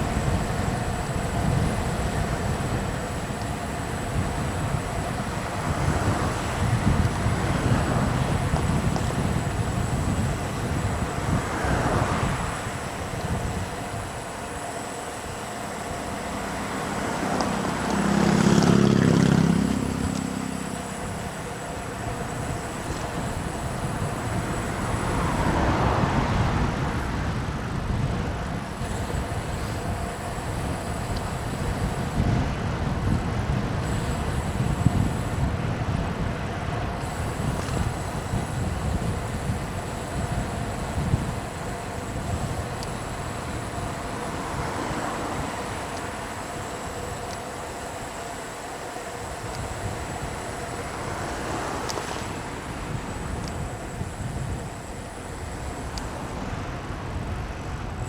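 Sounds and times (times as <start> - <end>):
road traffic passing: 0.0 - 58.0
rushing wind: 0.0 - 58.0
deep-running vehicle passing: 5.2 - 13.0, 15.7 - 23.2, 23.8 - 27.8.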